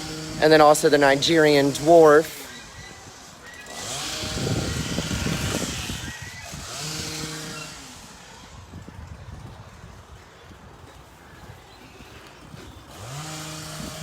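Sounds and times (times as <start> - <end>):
motor engine running: 0.0 - 9.0, 12.8 - 14.0.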